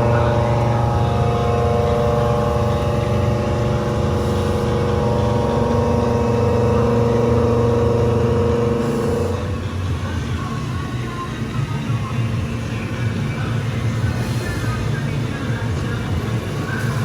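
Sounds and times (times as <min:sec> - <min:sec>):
milling machine cutting metal: 0:00.0 - 0:10.8.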